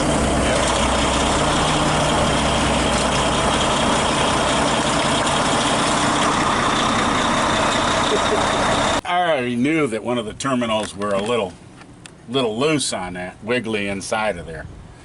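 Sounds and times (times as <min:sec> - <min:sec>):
diesel truck engine idling: 0:00.0 - 0:09.0.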